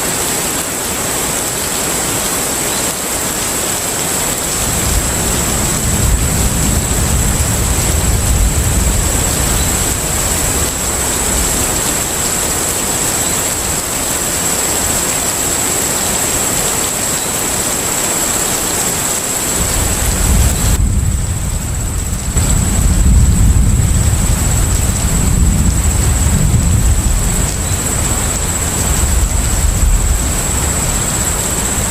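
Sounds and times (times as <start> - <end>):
rushing hiss of water: 0.0 - 31.9
low rumble: 4.6 - 12.1, 19.6 - 31.9.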